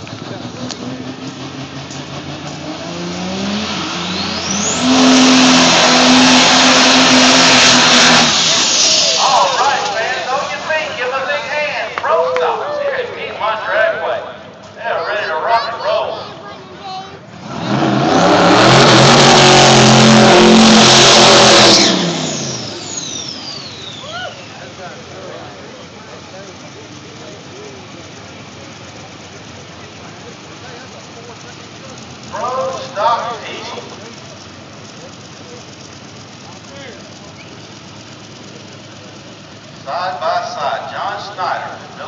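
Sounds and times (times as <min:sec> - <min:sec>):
diesel truck engines revving: 0:00.0 - 0:42.0
tire noise: 0:00.0 - 0:42.0
high whine sliding down: 0:03.9 - 0:13.3.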